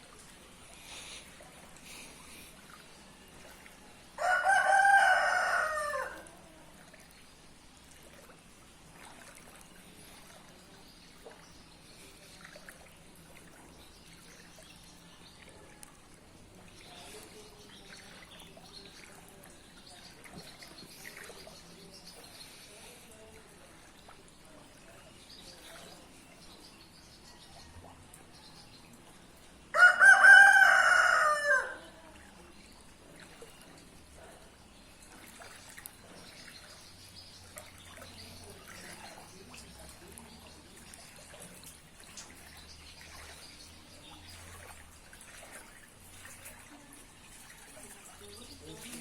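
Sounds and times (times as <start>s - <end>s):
faint background noise: 0.0s - 49.0s
bird crowing loudly: 4.2s - 6.2s, 29.8s - 31.8s.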